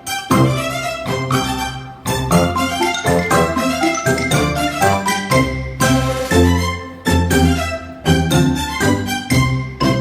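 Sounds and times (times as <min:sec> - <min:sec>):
string instruments playing: 0:02.8 - 0:05.0.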